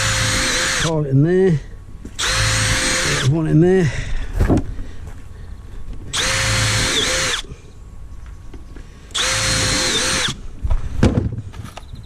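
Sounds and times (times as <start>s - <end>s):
cordless drill driving screws: 0.0s - 0.9s, 2.2s - 3.4s, 6.1s - 7.5s, 9.1s - 10.4s.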